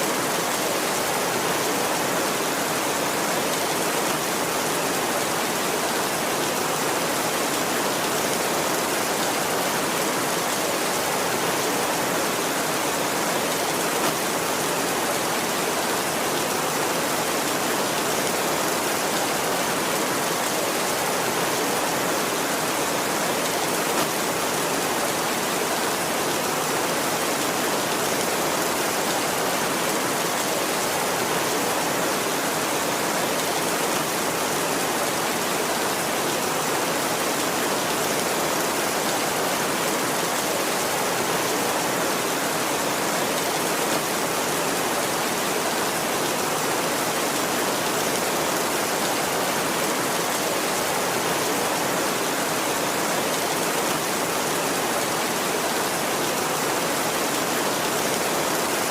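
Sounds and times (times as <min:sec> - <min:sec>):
heavy rainfall: 0:00.0 - 0:58.9.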